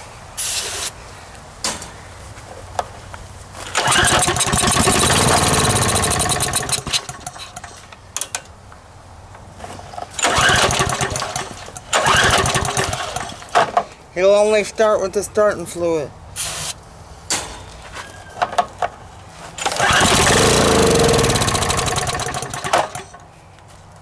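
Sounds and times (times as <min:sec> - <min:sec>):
small engine catching and running: 0:03.6 - 0:08.4, 0:10.1 - 0:13.8, 0:19.6 - 0:23.3.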